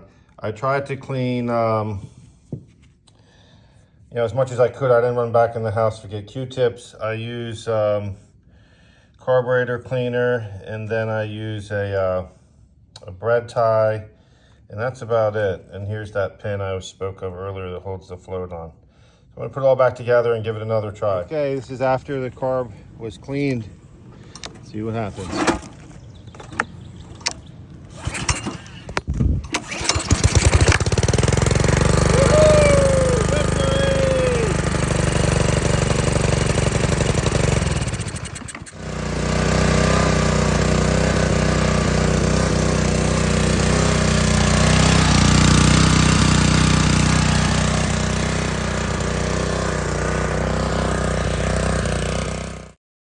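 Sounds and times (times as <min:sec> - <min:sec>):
small engine running: 0:25.3 - 0:28.9, 0:29.5 - 0:52.8.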